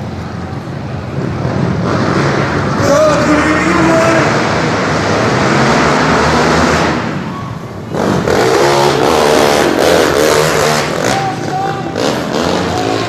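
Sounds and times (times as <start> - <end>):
motocross bikes racing past: 0.3 - 13.0.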